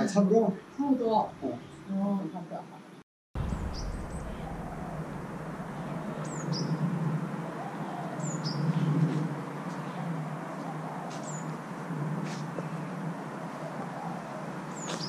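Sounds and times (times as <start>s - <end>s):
high falling bird chirps: 3.4s - 6.9s
steady low hum: 3.4s - 8.2s.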